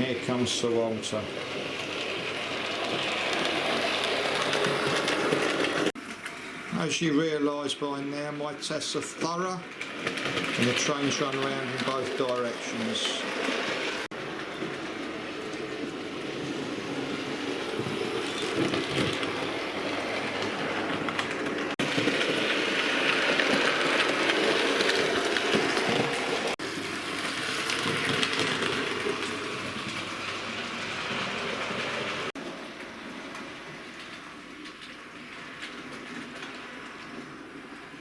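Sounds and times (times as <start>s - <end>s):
wheels clicking over rails: 0.0s - 38.0s.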